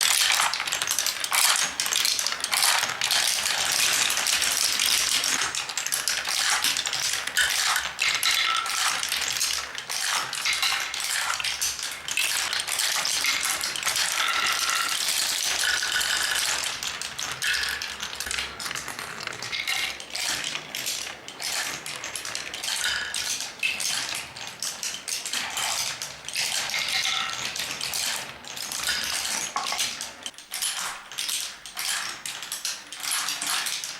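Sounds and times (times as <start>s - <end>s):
marbles clattering on wooden track: 0.0s - 33.9s
glass marbles clinking together: 6.4s - 18.8s.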